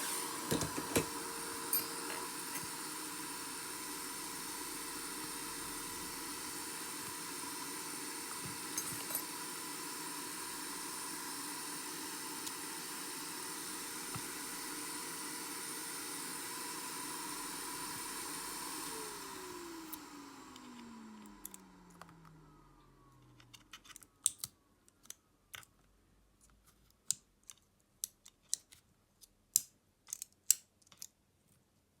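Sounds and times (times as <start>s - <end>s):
electric fan motor humming: 0.0s - 23.6s.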